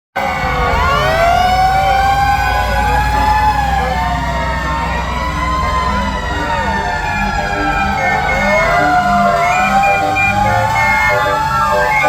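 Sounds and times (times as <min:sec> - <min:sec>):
fire truck sirens wailing: 0:00.2 - 0:12.0
truck engines rumbling: 0:00.2 - 0:12.0.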